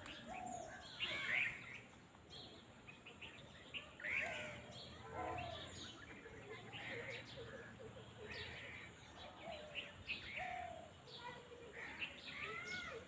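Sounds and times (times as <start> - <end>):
birds chirping: 0.0 - 13.0
faint outdoor noise: 0.0 - 13.0.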